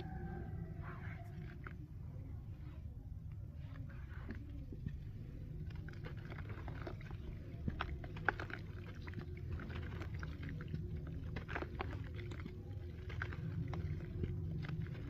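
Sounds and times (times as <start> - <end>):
low rumble: 0.0 - 15.0
cement crumbling and crunching: 4.2 - 15.0.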